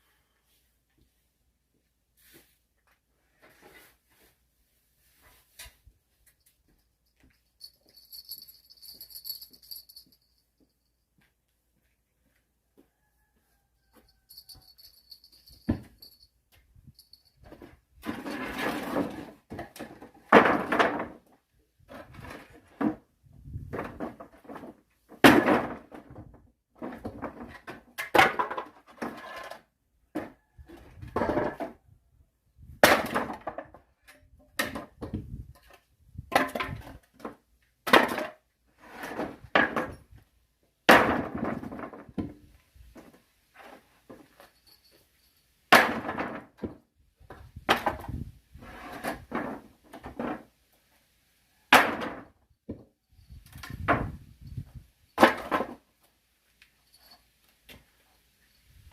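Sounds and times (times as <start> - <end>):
axe splitting firewood: 32.8 - 33.8, 40.9 - 42.4, 45.7 - 46.8, 51.7 - 52.3, 55.2 - 55.8.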